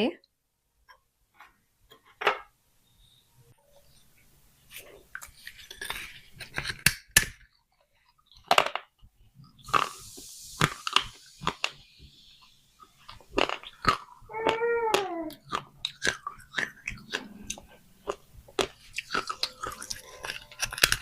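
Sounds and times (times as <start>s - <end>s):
clay pots clinking and cracking: 5.1s - 9.8s.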